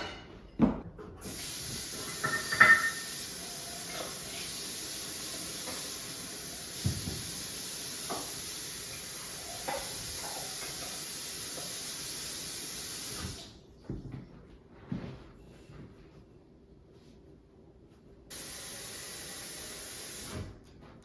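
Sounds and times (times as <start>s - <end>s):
steady hiss: 18.3s - 20.5s.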